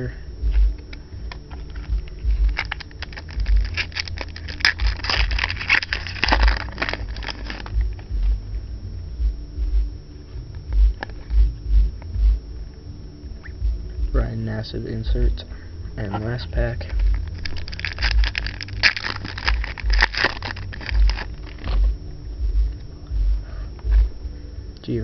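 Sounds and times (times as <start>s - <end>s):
foil wrapper crinkling: 0.7s - 8.1s, 16.7s - 21.9s.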